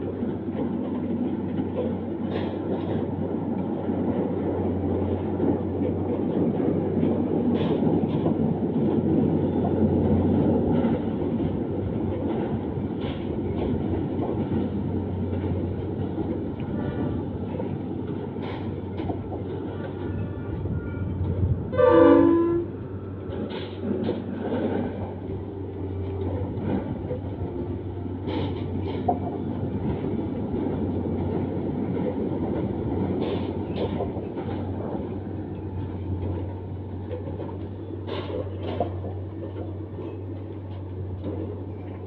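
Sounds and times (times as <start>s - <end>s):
train wheels rumbling: 0.0s - 42.0s
train horn blast: 20.7s - 22.8s.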